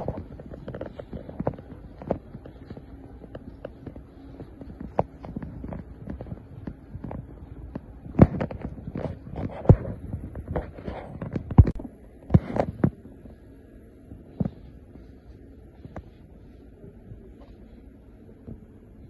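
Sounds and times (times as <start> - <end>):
irregular thumps and knocks: 0.0 - 13.3
low steady hum: 0.0 - 19.0.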